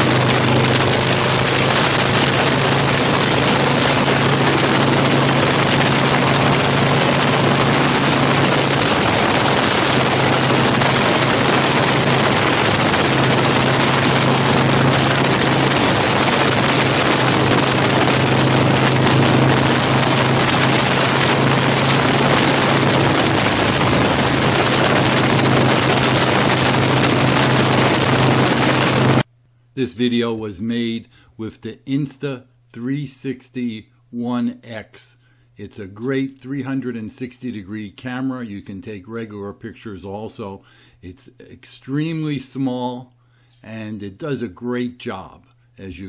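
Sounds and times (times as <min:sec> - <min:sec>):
wind rush: 0:00.0 - 0:29.2
motorcycle engine cruising: 0:00.0 - 0:29.3.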